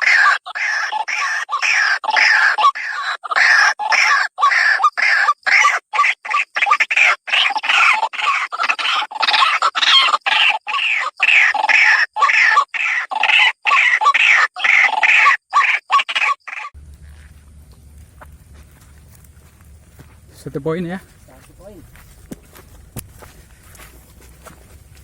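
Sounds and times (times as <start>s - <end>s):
harsh bird calls: 0.0s - 16.8s.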